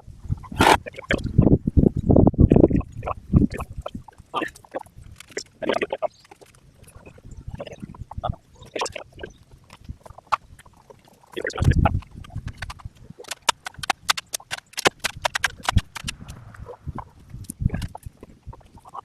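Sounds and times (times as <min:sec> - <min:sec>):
sharp clicks and knocks on wood: 0:09.7 - 0:16.5.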